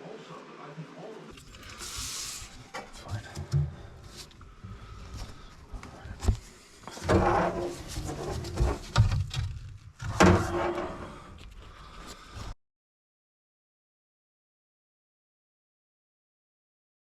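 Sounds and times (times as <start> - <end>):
objects knocking and clattering: 6.9 - 10.8.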